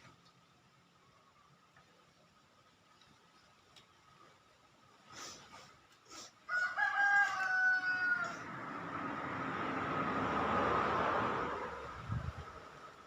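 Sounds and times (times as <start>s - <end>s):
rooster crowing: 6.5s - 9.0s.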